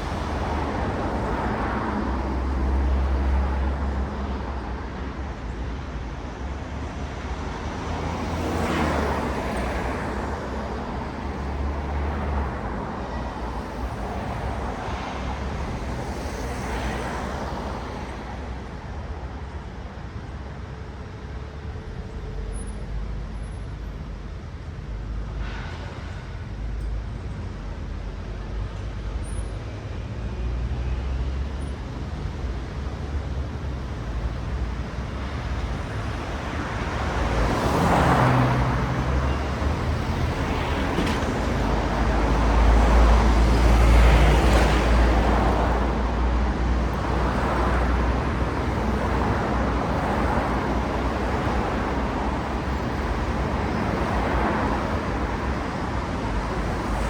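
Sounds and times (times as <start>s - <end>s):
cars passing: 0.0s - 19.1s, 32.0s - 57.0s.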